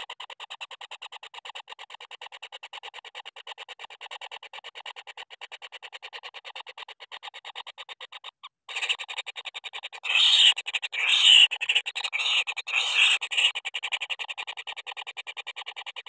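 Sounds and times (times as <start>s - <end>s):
bird chicks calling raspy pulses: 4.8s - 16.0s.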